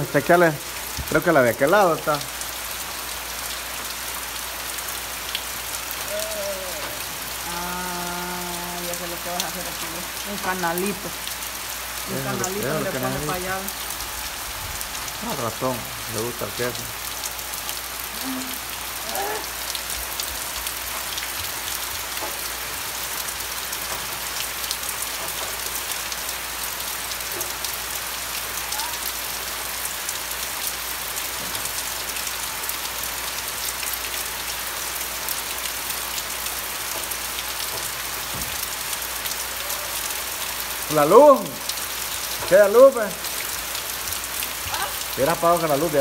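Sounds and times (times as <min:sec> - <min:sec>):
heavy rain falling: 0:00.0 - 0:46.0.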